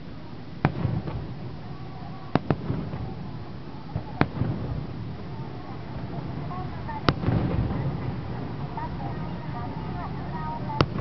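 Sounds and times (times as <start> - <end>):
low rolling rumble: 0.0 - 11.0
firework shells bursting: 0.6 - 9.0.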